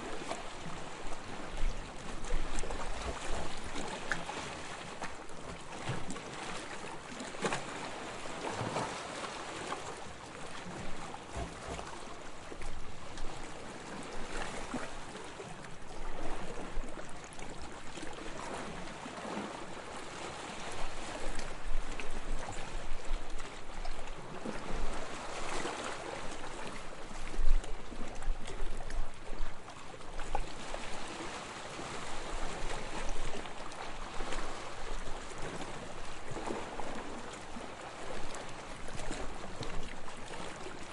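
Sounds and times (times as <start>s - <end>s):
waves lapping on sandy shore: 0.0s - 15.7s, 29.7s - 40.9s.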